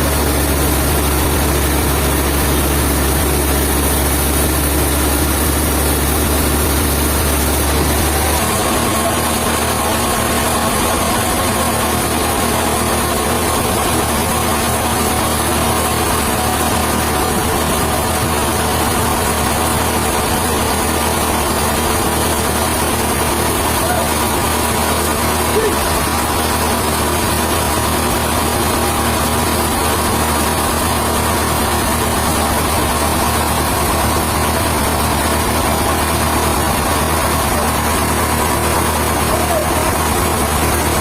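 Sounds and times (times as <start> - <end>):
sawmill machinery running: 0.0 - 41.0.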